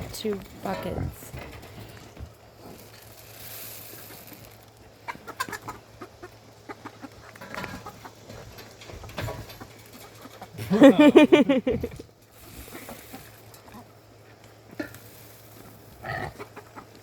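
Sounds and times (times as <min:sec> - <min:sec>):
chickens clucking: 0:04.1 - 0:17.0.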